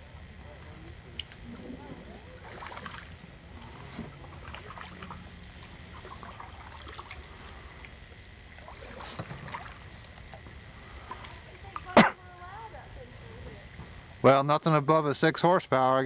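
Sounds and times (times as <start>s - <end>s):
paddle splashing in water: 2.3s - 10.4s
water dripping: 2.5s - 12.4s.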